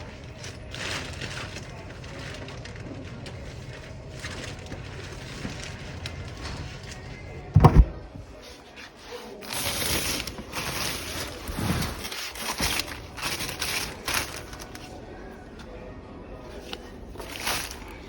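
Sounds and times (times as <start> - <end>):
rustling and scraping: 0.0 - 15.1, 16.5 - 18.0
heavy thump: 7.5 - 8.2.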